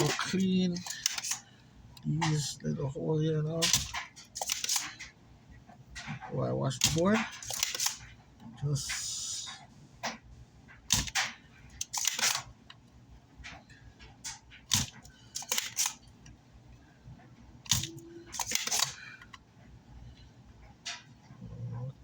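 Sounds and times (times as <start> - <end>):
desoldering pump snapping: 0.0 - 1.4, 3.5 - 5.1, 6.0 - 8.1, 10.8 - 12.8, 14.2 - 16.4, 17.6 - 19.4.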